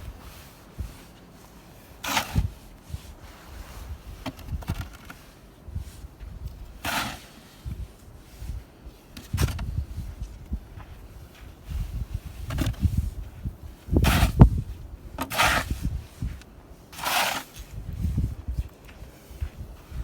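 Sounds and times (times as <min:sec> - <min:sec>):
snow shovel scraping snow: 0:00.0 - 0:10.3, 0:13.8 - 0:14.6, 0:15.2 - 0:20.0.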